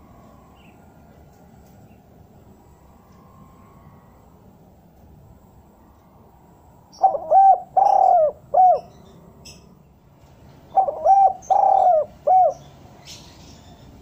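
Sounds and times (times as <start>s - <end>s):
dove cooing: 6.9s - 9.0s, 10.7s - 12.7s.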